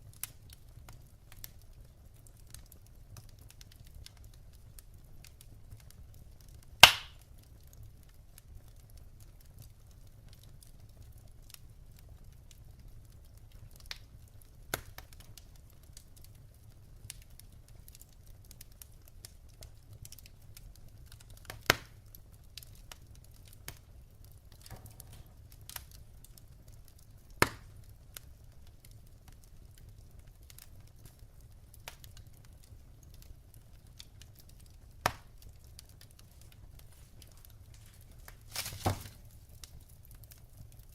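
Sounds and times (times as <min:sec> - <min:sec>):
loud fire pops: 0:00.0 - 0:07.8, 0:13.7 - 0:16.0, 0:21.0 - 0:40.9
wood fire crackling: 0:00.0 - 0:40.9.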